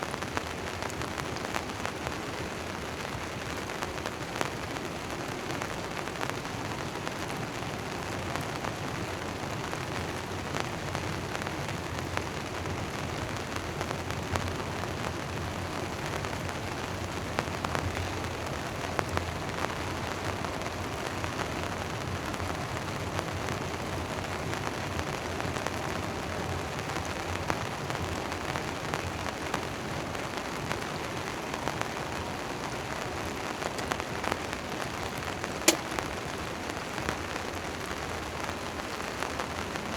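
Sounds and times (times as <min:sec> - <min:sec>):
rain on a tent tarp: 0:00.0 - 0:39.9
drops ticking on tarp: 0:35.6 - 0:36.1.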